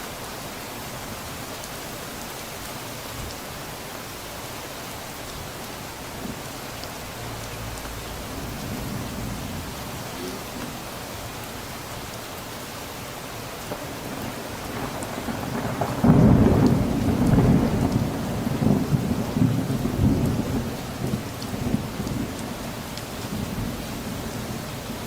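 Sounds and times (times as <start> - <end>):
steady rain: 0.0 - 25.0
thunder rumbling: 6.1 - 12.1, 13.6 - 24.9.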